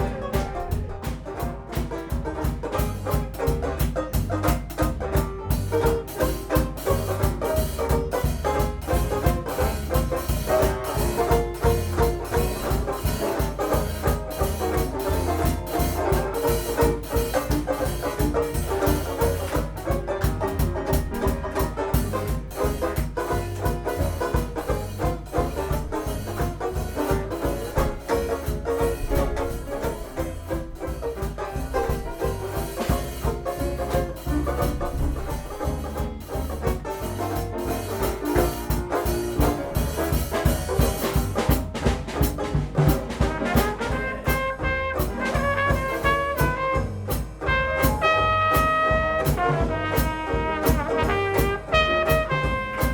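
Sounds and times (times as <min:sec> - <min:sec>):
jazz band playing: 0:00.0 - 0:52.9
trumpet held notes: 0:43.3 - 0:52.9.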